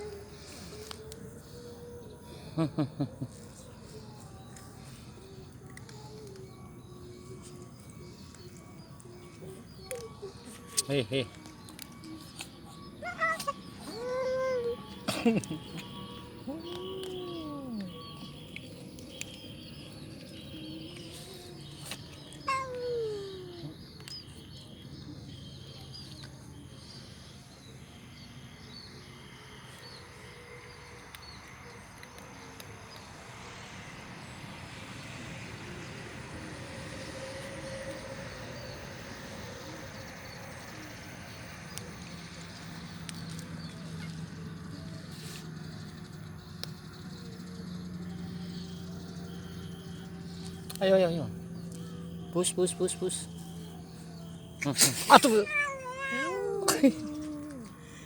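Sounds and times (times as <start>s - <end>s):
small birds chirping: 0.0s - 30.1s, 37.8s - 58.0s
cat meowing: 13.0s - 15.0s, 16.5s - 18.1s, 22.4s - 23.7s, 55.1s - 57.7s.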